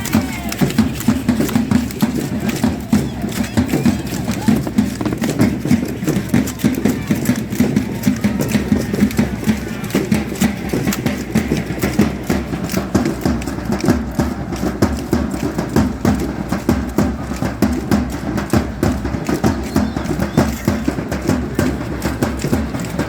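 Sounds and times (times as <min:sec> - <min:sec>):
dancers stamping steps: 0:00.0 - 0:23.0.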